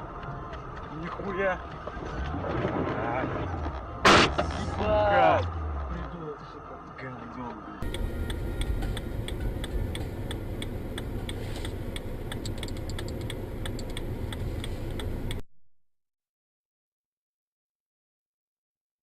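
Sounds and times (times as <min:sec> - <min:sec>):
car moving heard from inside: 0:00.1 - 0:15.4
rapid sharp ticks: 0:07.8 - 0:15.4.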